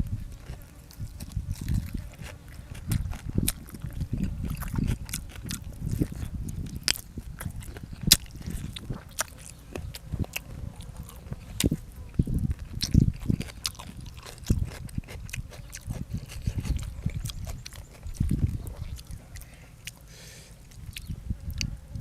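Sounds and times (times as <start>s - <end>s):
person chewing and smacking: 0.0s - 21.8s.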